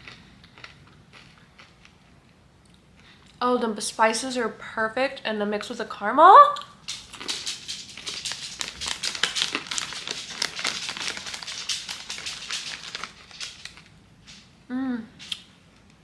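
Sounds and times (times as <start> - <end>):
caramel corn crunching while chewed: 0.0 - 3.4, 6.9 - 14.0.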